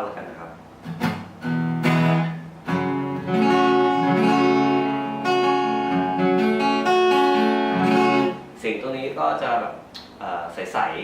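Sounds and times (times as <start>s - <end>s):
acoustic guitar strummed: 0.8s - 8.6s.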